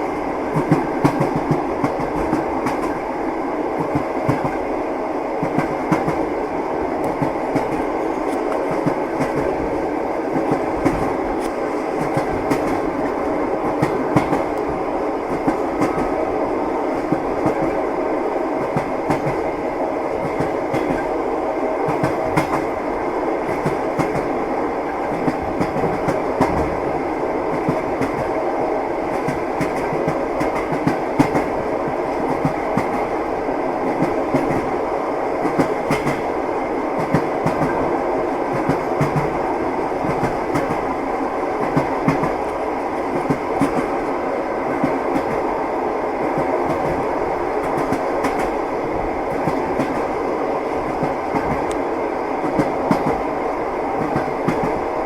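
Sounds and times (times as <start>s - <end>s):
train wheels clickety-clack: 0.0s - 4.8s, 5.4s - 55.0s
train rolling rumble: 0.0s - 55.0s.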